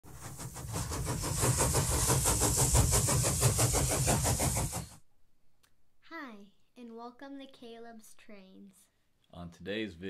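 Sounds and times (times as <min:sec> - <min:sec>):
train running with rhythmic beat: 0:00.0 - 0:05.0.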